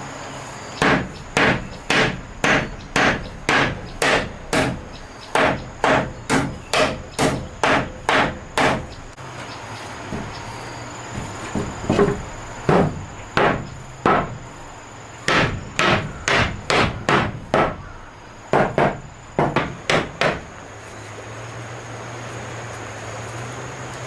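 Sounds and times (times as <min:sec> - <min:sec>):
hammering: 0:00.8 - 0:09.2, 0:10.0 - 0:20.6.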